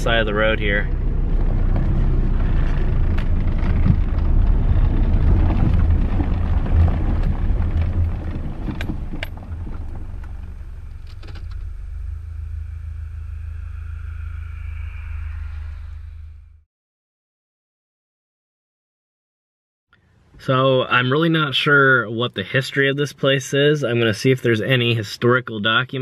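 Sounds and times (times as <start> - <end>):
car engine idling: 0.0 - 16.6
road rumble inside car: 0.0 - 16.6.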